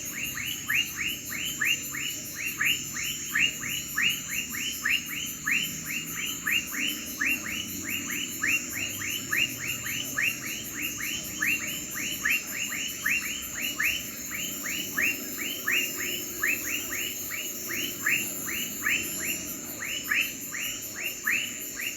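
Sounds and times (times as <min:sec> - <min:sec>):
crickets trilling: 0:00.0 - 0:21.9.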